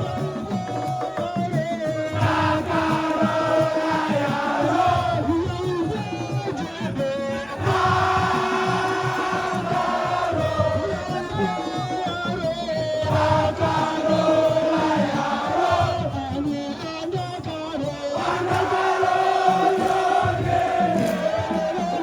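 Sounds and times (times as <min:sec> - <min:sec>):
voices chanting: 0:00.0 - 0:01.2, 0:02.1 - 0:05.9, 0:07.4 - 0:11.7, 0:13.0 - 0:16.5, 0:17.8 - 0:22.0
held sung lines: 0:00.0 - 0:22.0.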